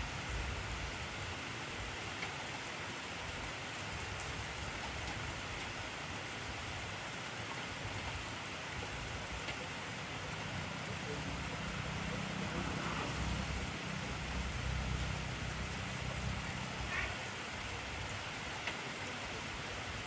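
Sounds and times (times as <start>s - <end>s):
heavy rain falling: 0.0s - 20.0s
sharp raindrop ticks: 18.6s - 18.9s.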